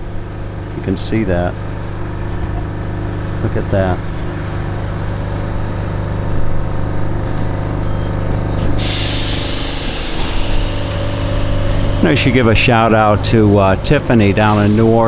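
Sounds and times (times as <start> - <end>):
tram motor hum: 0.0 - 15.0
loud hiss: 8.8 - 15.0.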